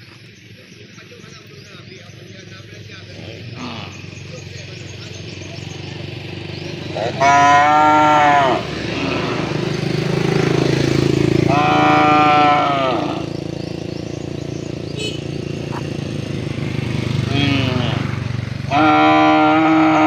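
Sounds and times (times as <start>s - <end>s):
cow mooing: 3.2s - 4.1s, 6.9s - 9.6s, 11.5s - 13.3s, 17.2s - 20.0s.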